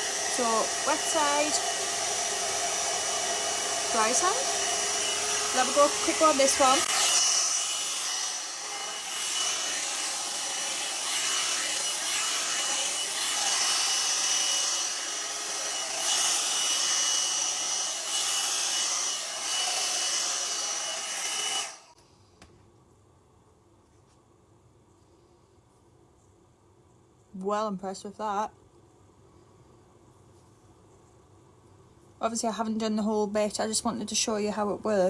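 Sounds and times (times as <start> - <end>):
hairdryer brush running: 0.0 - 22.0.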